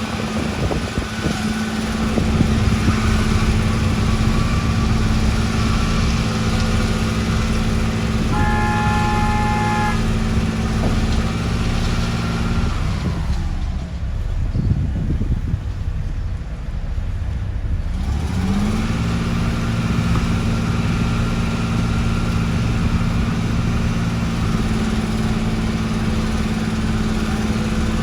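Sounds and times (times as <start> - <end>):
heavy diesel engine running: 0.0 - 28.0
horn: 8.3 - 10.3.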